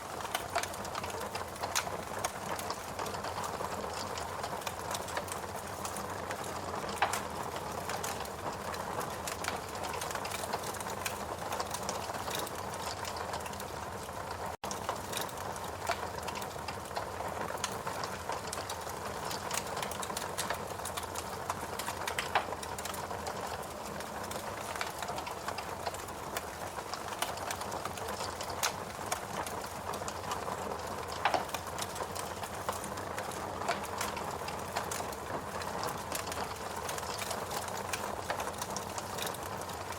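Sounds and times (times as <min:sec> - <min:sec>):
fireplace crackling: 0:00.0 - 0:39.9
fire pops: 0:07.9 - 0:13.7, 0:14.7 - 0:39.4.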